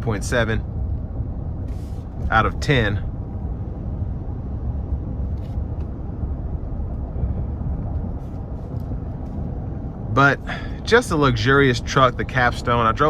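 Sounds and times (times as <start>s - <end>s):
road and wind noise in cabin: 0.0s - 13.0s.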